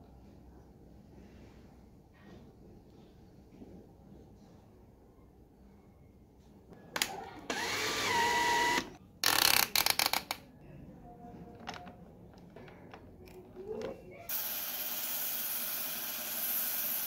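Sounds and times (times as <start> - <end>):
power tool whining: 7.5 - 9.4.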